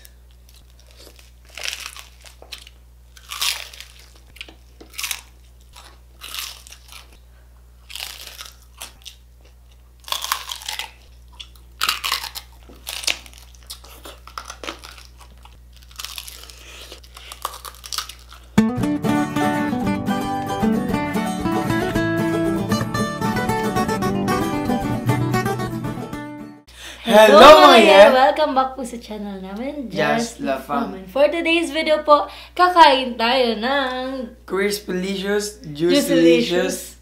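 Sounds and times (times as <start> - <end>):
crunching and chewing: 0.0 - 7.2, 7.8 - 18.6.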